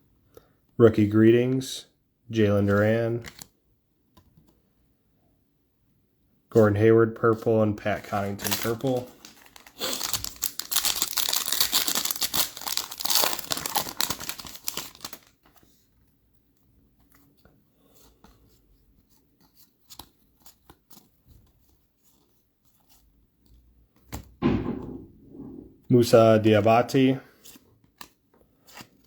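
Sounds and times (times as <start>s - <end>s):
wrapper tearing and crinkling: 8.0s - 15.6s.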